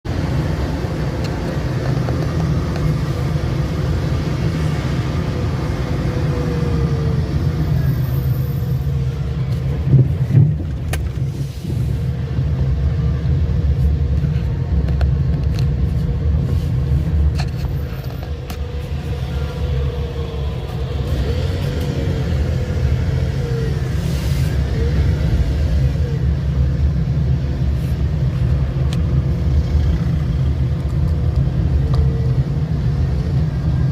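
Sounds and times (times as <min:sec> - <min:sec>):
car road rumble: 0:00.0 - 0:33.9.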